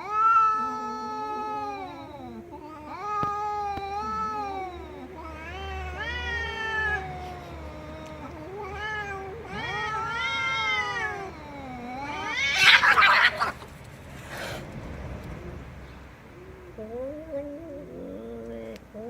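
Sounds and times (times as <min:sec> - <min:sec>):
cat yowling meows: 0:00.0 - 0:13.7.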